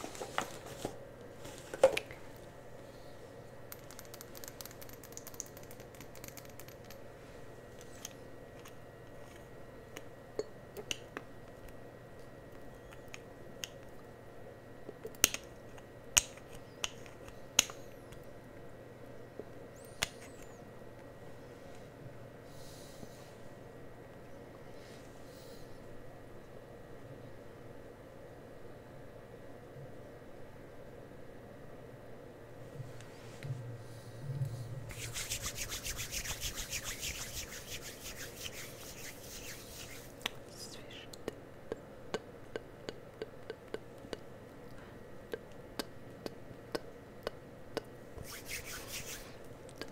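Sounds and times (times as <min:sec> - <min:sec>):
sharp clicks and taps: 0:03.7 - 0:07.0
rapid rubbing strokes: 0:34.8 - 0:40.2, 0:48.2 - 0:49.4.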